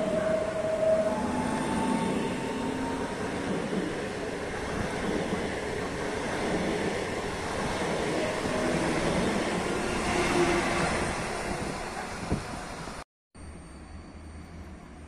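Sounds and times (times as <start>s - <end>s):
faint squeal tones: 0.0s - 3.4s, 13.4s - 15.0s.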